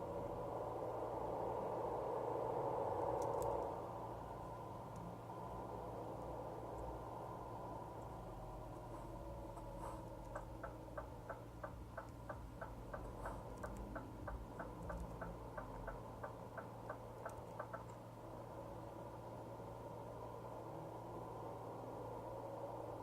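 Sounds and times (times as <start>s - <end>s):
truck engine drone: 0.0s - 23.0s
turn signal ticking: 8.0s - 18.0s.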